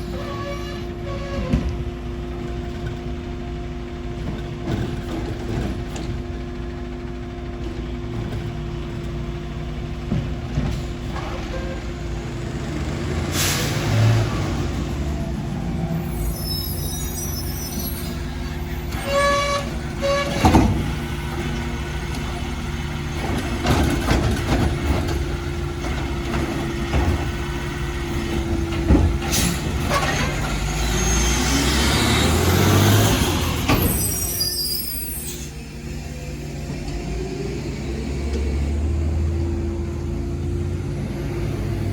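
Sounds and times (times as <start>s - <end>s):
garbage truck diesel engine: 0.0s - 41.9s
knocks and clanks: 18.9s - 30.7s.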